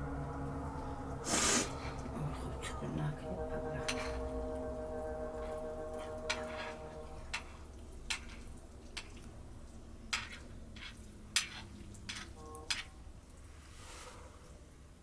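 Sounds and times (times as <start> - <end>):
metal spoon clinking on a pot: 3.8 - 4.3, 6.0 - 9.3, 10.1 - 13.0.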